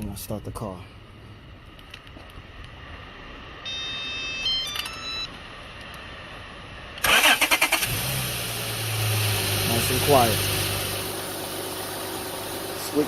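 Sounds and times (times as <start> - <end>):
high electronic tones: 3.6 - 5.3
car engine starter cranking: 7.0 - 8.2
car engine idling: 7.0 - 13.0.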